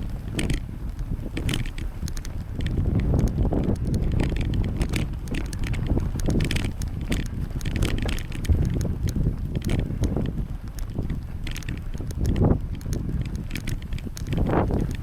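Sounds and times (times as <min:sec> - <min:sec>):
bicycle clicks and rattles: 0:00.0 - 0:15.0
wind buffeting microphone: 0:00.0 - 0:15.0.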